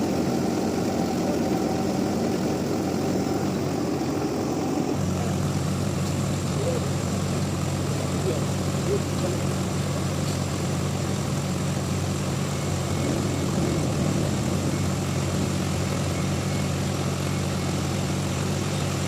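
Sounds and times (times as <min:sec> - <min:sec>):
heavy machine engine running: 0:00.0 - 0:19.0.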